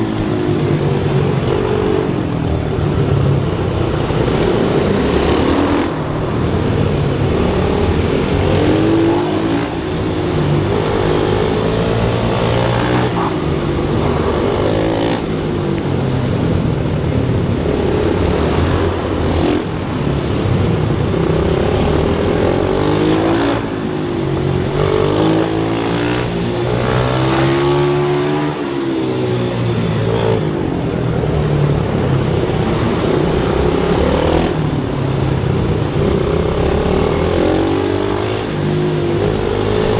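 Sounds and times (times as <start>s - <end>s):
pit bike engine revving: 0.0s - 39.9s.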